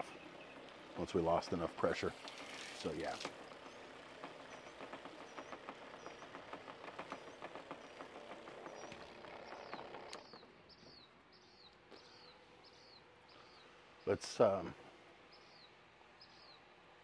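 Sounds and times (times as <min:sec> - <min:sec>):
small bird chirping: 0:03.5 - 0:13.8, 0:15.3 - 0:16.7.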